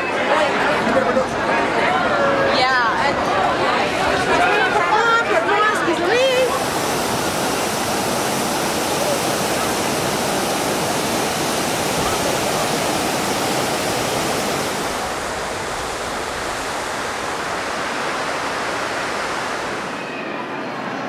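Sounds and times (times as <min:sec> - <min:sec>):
falling water rushing: 0:03.6 - 0:20.2.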